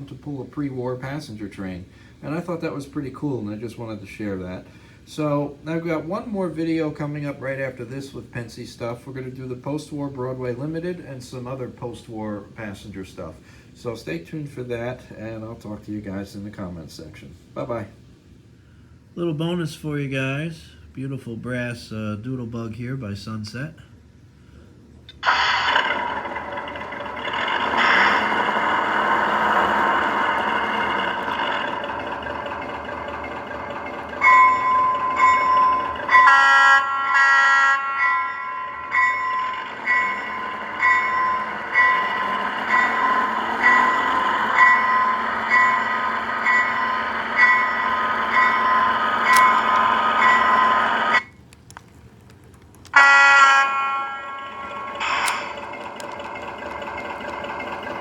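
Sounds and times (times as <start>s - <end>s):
model train engine rumble: 0.0s - 16.8s, 25.2s - 51.3s, 52.9s - 58.0s
train horn blasts: 34.2s - 51.2s, 53.0s - 55.7s
short horn-like tones: 52.9s - 55.6s.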